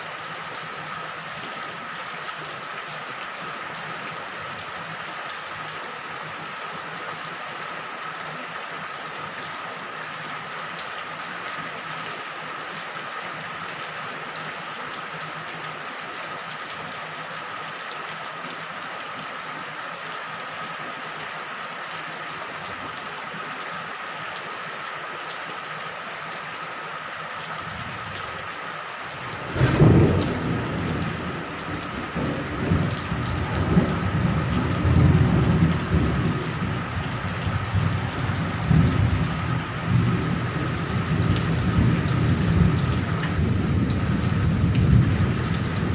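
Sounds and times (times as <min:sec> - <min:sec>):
steady rain hissing: 0:00.0 - 0:45.9
thunder rumbling: 0:29.2 - 0:45.9.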